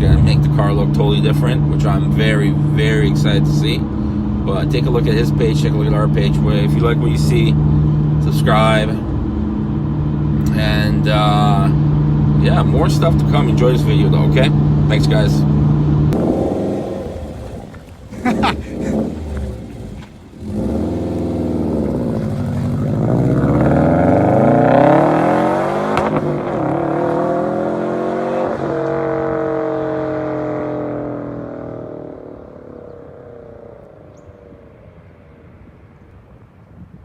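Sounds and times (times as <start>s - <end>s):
sports car accelerating past: 14.5s - 35.4s.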